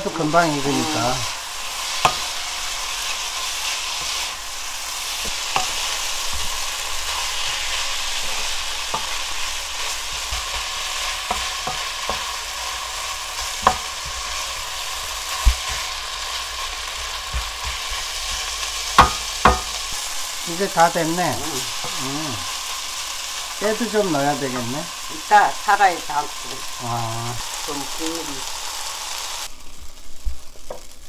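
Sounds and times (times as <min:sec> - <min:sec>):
meat sizzling in a frying pan: 0:00.0 - 0:31.0
spatula knocking against pan: 0:19.0 - 0:19.8.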